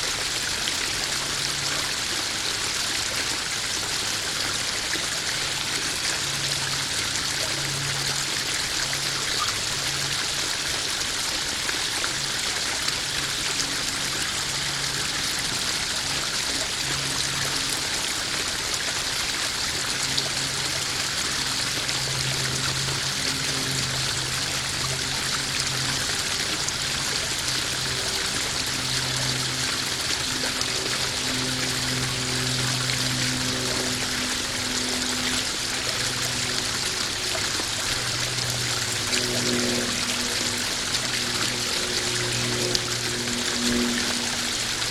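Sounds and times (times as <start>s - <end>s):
small waterfall splashing: 0.0s - 44.9s.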